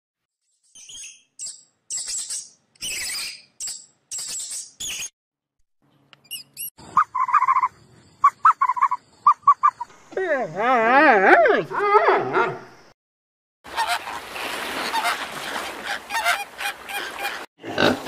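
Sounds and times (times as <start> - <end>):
high-pitched squeaky animal chirps: 0.8 - 5.1, 6.2 - 9.9
lower pulsed animal calls: 6.8 - 10.8.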